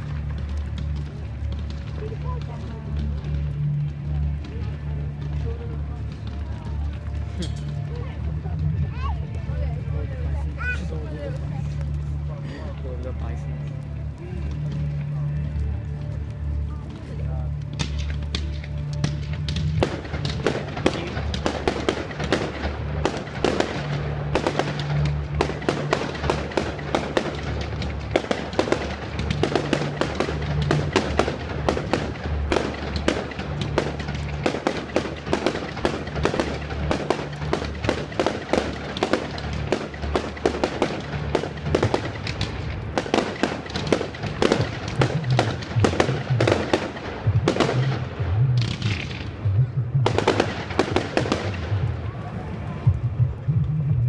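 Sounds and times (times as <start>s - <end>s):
fireworks crackling: 0.0s - 54.0s
music with bass line: 47.3s - 50.3s.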